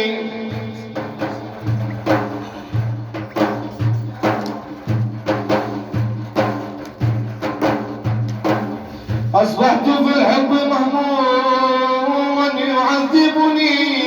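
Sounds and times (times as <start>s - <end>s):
quick steady percussion beat: 0.0s - 10.5s
deep low drum beats: 0.2s - 10.1s.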